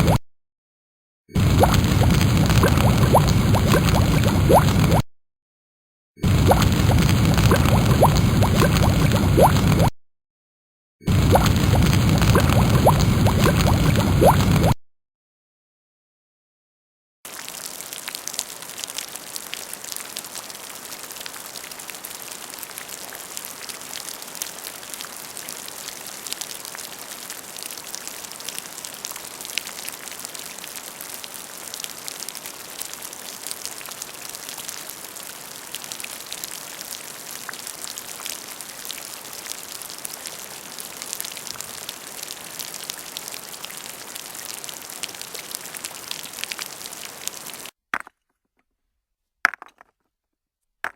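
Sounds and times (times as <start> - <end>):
steady rain falling: 1.4 - 5.0, 6.2 - 9.9, 11.1 - 14.6, 17.3 - 47.7.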